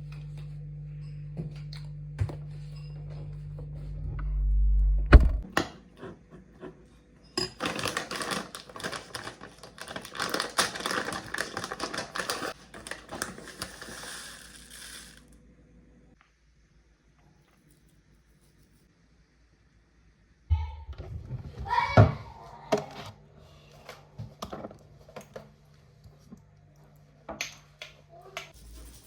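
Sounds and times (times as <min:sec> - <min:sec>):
packaging crackling and rustling: 0:07.6 - 0:14.6
packaging handling rumble: 0:07.6 - 0:14.6.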